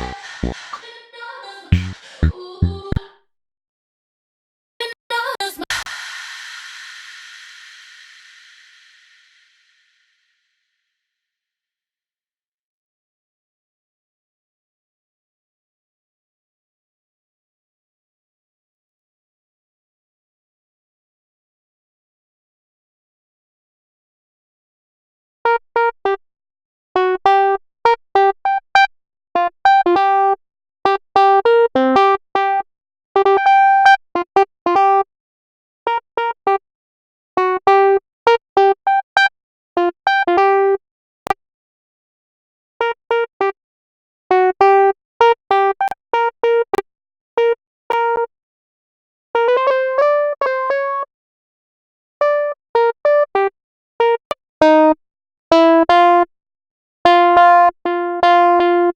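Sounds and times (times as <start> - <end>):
electric piano synth notes: 0.0 - 0.8, 1.8 - 3.0.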